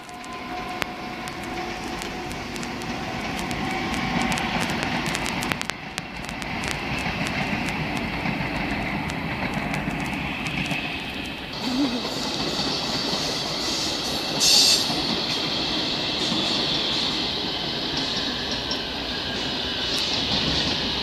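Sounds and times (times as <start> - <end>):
sharp clicks: 0.0 - 11.4
train wheels on rails: 0.0 - 21.0.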